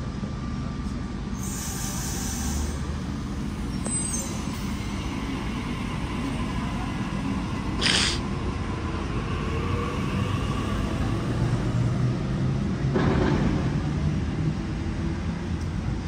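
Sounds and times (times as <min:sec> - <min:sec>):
electric train rumbling: 0:00.0 - 0:16.0
short hiss: 0:07.8 - 0:08.2.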